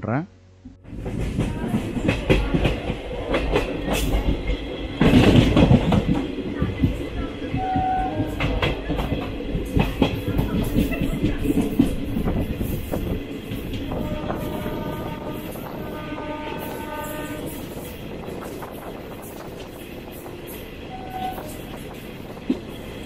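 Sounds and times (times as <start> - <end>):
train wheels clattering: 0.9 - 23.0
train horn blasts: 7.6 - 8.6, 13.9 - 17.8, 19.9 - 21.8.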